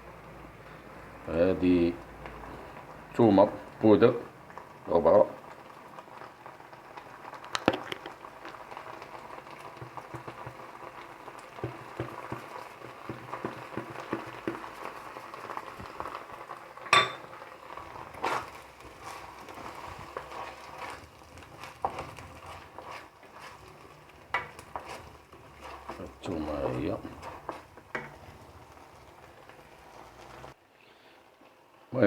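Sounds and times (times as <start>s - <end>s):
sauce sizzling and bubbling in pan: 0.0s - 31.9s
utensil scraping pan: 17.9s - 30.5s.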